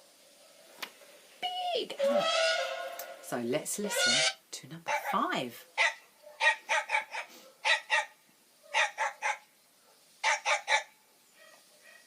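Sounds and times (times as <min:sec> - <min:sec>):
small dog barking: 0:04.9 - 0:12.0.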